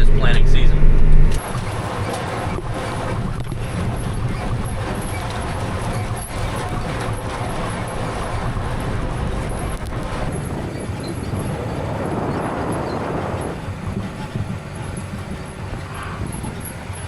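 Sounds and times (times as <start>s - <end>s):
rushing swell: 0.0s - 1.4s
vehicle engine rumbling: 0.0s - 17.0s.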